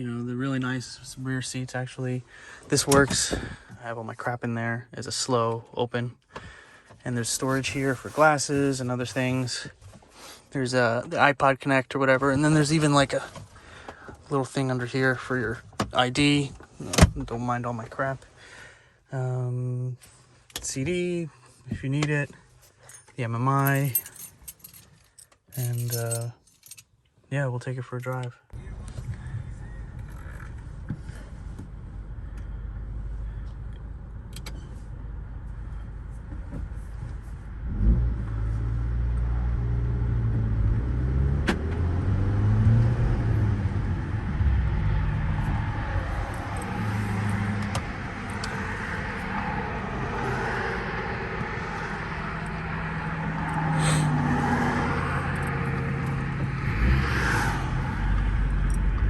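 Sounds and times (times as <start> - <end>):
road noise: 0.0 - 4.3, 5.0 - 26.8, 28.1 - 59.0
car engine accelerating: 28.6 - 59.0.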